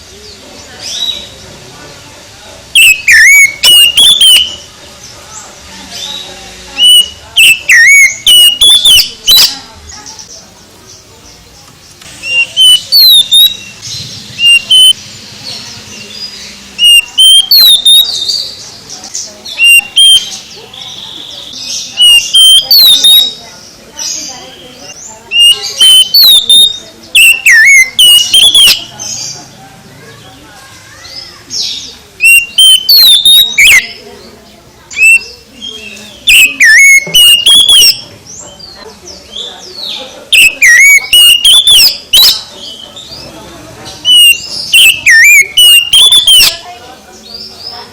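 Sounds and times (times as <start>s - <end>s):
bird singing whistled phrases: 2.7s - 4.7s, 6.8s - 9.7s, 12.2s - 13.8s, 14.4s - 15.0s, 16.8s - 18.6s, 19.4s - 23.4s, 24.5s - 28.9s, 31.0s - 34.1s, 34.9s - 38.1s, 39.8s - 42.8s, 44.0s - 46.6s.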